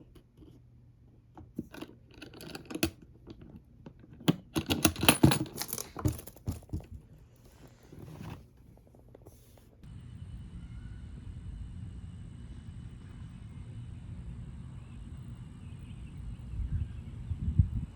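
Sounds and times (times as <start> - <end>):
steady background hum: 0.0 - 17.9
rustling and clicking handling: 1.2 - 9.8.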